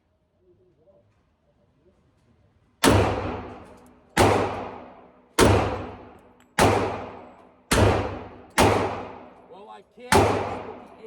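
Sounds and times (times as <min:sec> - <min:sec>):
pistol shots with echo: 0:02.8 - 0:09.5, 0:10.1 - 0:11.0.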